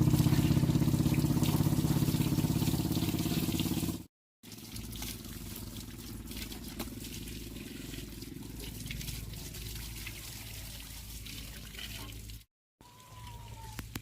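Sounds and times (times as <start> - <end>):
small engine running: 0.0 - 9.6
water trickling: 0.0 - 14.0.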